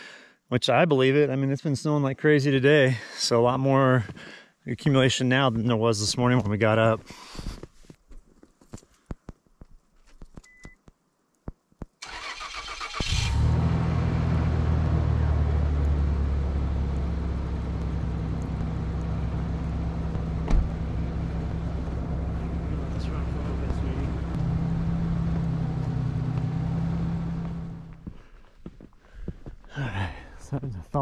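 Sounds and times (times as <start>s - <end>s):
vehicle engine cranking and idling: 12.0s - 28.2s.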